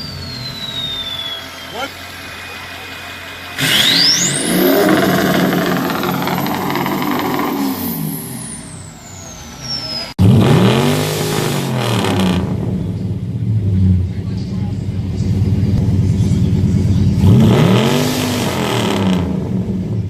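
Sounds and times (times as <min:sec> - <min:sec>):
high whine sweeping up: 0:00.0 - 0:10.1
car engine revving: 0:00.0 - 0:20.0.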